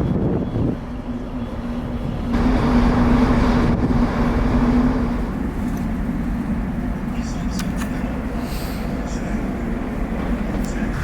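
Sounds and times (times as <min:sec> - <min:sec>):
vehicle engine drone: 0:02.1 - 0:08.1.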